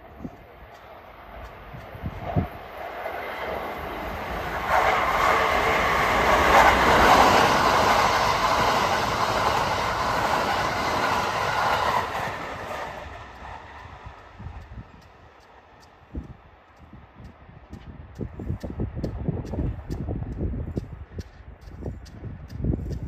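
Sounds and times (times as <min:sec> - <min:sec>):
electric train running: 0:00.0 - 0:16.9.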